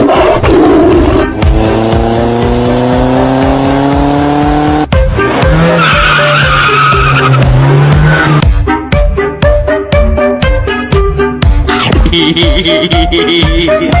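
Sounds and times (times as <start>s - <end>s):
vehicle engine revving: 0.9s - 6.2s, 6.9s - 8.4s.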